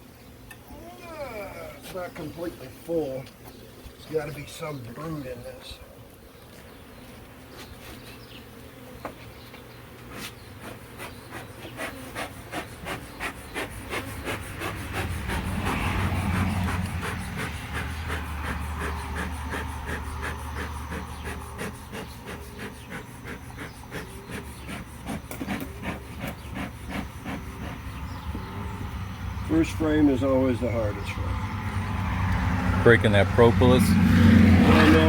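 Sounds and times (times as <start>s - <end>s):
hive tool scraping wooden frames: 1.8s - 28.5s, 34.5s - 35.0s.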